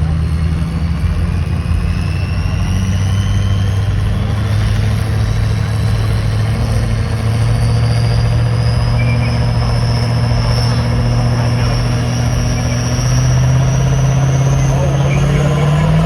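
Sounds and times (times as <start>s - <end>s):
truck engine running: 0.0s - 16.0s
high whine rising in pitch: 0.2s - 16.0s.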